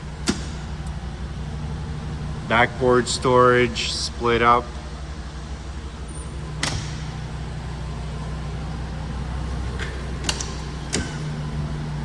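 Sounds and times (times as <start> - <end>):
engine idling with low hum: 0.0 - 12.0
sharp click: 0.2 - 1.0.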